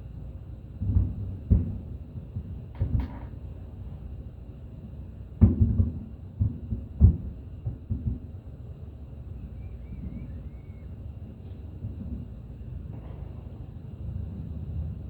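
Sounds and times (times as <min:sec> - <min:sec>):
fireworks booming: 0:00.7 - 0:03.9, 0:05.4 - 0:08.5, 0:09.8 - 0:15.0.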